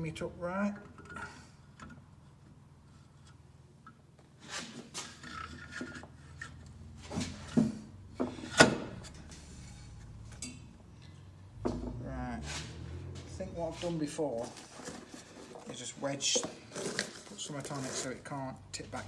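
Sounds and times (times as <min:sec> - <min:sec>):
metal knocks and clunks: 0:11.6 - 0:12.0.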